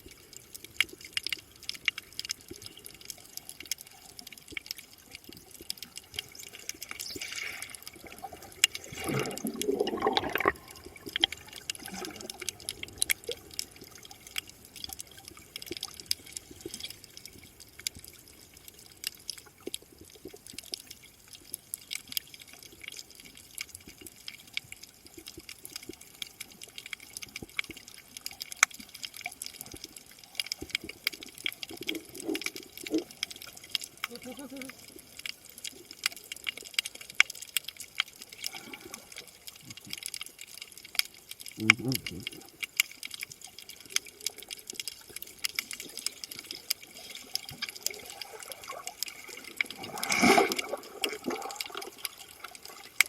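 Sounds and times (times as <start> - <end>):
underwater crackle of small clicks: 0.0 - 53.0
bubbling rush: 6.0 - 14.6, 45.7 - 53.0.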